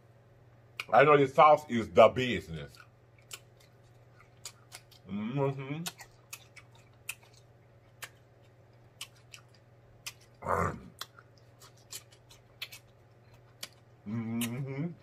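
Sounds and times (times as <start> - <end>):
cucumber crunching: 2.2 - 15.0
person moaning: 10.4 - 10.9, 14.1 - 15.0
wet mouth clicks: 13.6 - 14.8.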